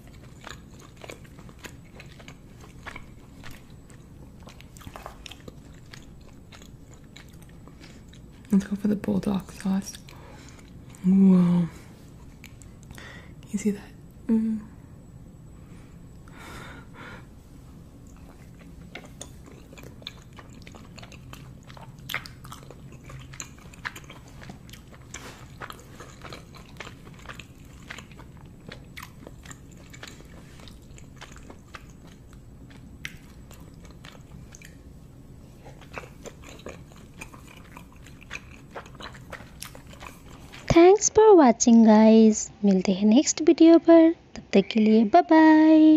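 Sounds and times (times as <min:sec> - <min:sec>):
person chewing food: 0:00.0 - 0:08.6, 0:09.9 - 0:11.1, 0:12.0 - 0:13.1, 0:17.2 - 0:40.7
faint low hum: 0:00.0 - 0:45.9.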